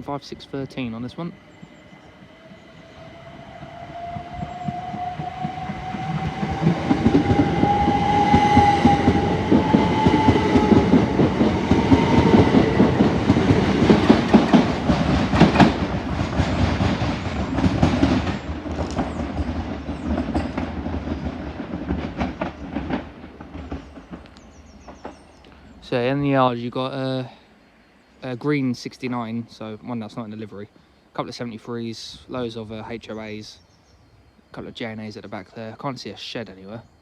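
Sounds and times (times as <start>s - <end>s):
electric train motor whine: 1.1s - 16.2s
wheels clattering over rail joints: 4.7s - 26.5s.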